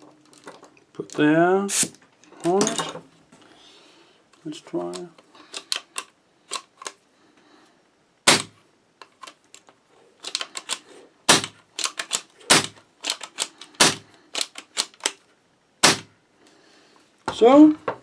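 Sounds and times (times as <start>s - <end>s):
airsoft rifle firing pops: 8.3s - 8.6s, 15.8s - 16.1s
rifle bolt clicking: 11.4s - 13.7s.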